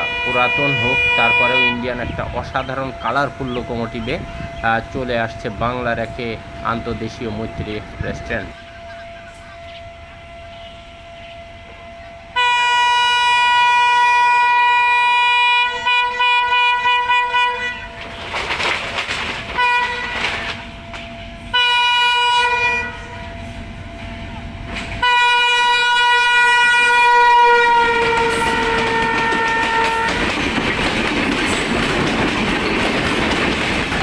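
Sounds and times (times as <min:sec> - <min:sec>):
locomotive air horn blasts: 0:00.0 - 0:03.5, 0:06.4 - 0:18.2, 0:19.5 - 0:20.5, 0:21.4 - 0:23.5, 0:25.0 - 0:30.3
moving train rumble: 0:00.0 - 0:34.0.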